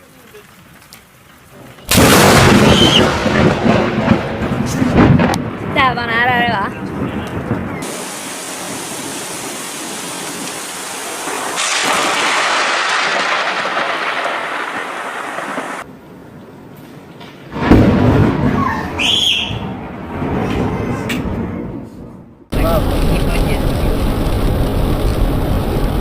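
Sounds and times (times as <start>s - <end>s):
thunder crack: 1.9s - 15.9s, 17.5s - 26.0s
heavy rain hissing: 7.7s - 15.8s, 22.5s - 26.0s.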